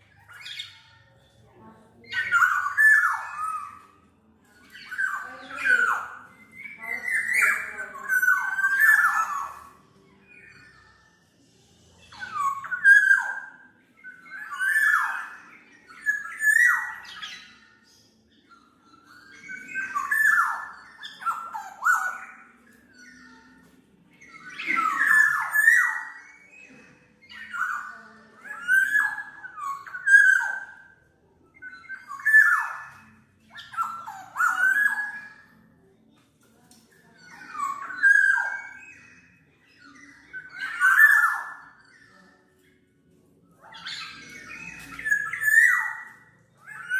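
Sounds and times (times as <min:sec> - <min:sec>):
bird whistled song: 0:00.0 - 0:01.0, 0:02.0 - 0:35.9, 0:37.0 - 0:46.9.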